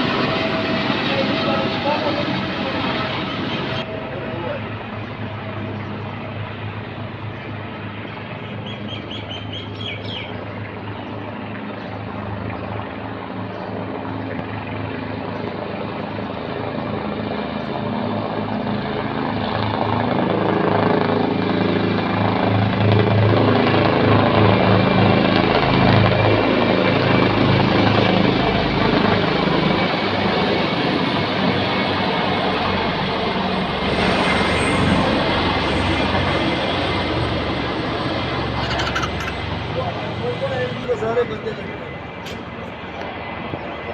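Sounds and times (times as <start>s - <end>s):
helicopter rotors beating: 0.0s - 43.9s
bird chirps: 8.4s - 10.6s.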